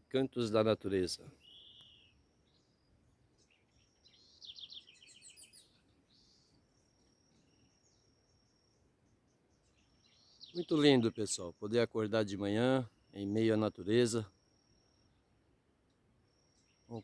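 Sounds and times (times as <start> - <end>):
thin high bird whistle: 1.4 - 2.2
high bird chirps: 1.4 - 2.8, 3.4 - 8.8, 9.6 - 11.5.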